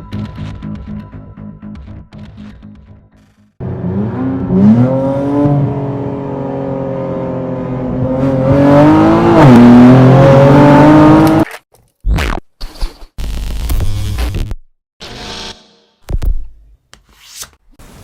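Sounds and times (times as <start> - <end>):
car engine accelerating hard: 3.6 - 11.4.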